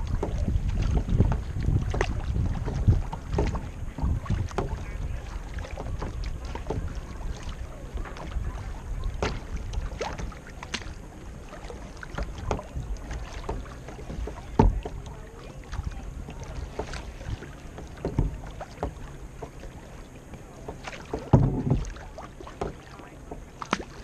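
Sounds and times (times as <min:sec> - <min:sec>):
kayak paddle splashing: 0:00.0 - 0:24.0
water slapping against hull: 0:00.0 - 0:24.0
wind rumble on microphone: 0:00.0 - 0:24.0
thump: 0:14.2 - 0:14.9, 0:18.0 - 0:19.0, 0:21.1 - 0:21.9.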